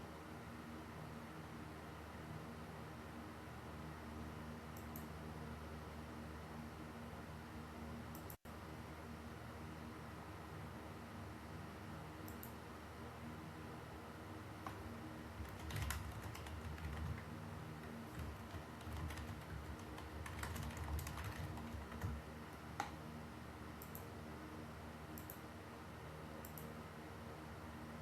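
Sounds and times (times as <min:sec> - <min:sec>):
faint steady hum: 0:00.0 - 0:28.0
keyboard typing clicks: 0:12.2 - 0:12.6, 0:14.6 - 0:22.2, 0:23.8 - 0:24.0, 0:25.2 - 0:25.4, 0:26.4 - 0:26.7.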